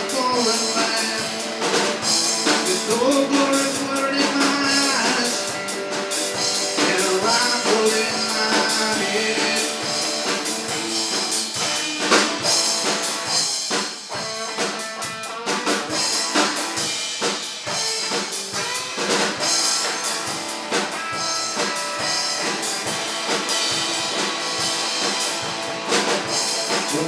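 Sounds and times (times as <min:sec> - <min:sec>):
drum kit: 0:00.0 - 0:27.0
rock band playing: 0:00.0 - 0:27.0.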